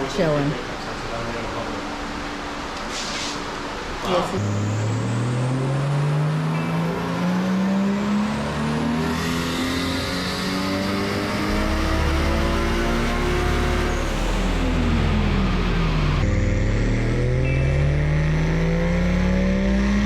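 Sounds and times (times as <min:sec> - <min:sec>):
car engine revving under load: 0:01.5 - 0:20.0
low rumble: 0:11.4 - 0:19.4.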